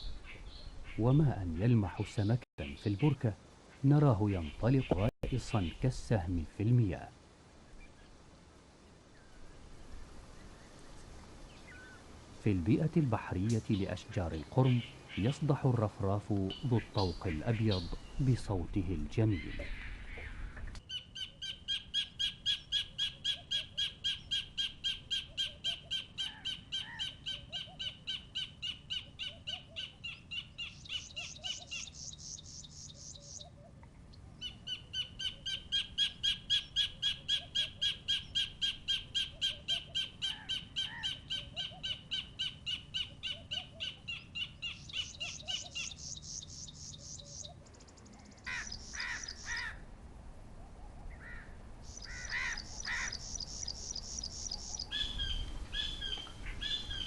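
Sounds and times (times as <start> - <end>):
kingfisher calling sharp notes: 48.5 - 49.8, 51.2 - 57.0.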